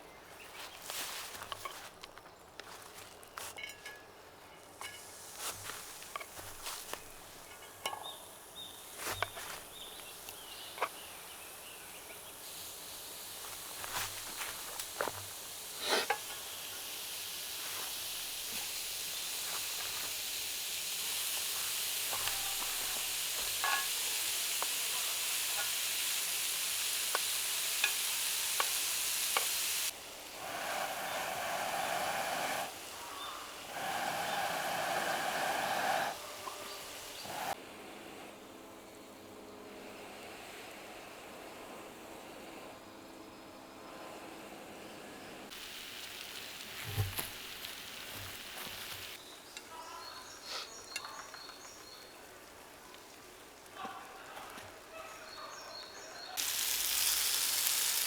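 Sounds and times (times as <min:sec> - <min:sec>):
meat sizzling: 0:04.9 - 0:37.6, 0:45.5 - 0:49.2, 0:56.4 - 0:58.0.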